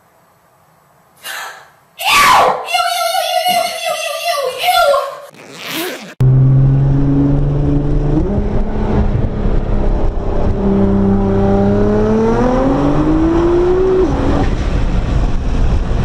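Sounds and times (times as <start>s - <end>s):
car engine revving: 5.3s - 16.0s.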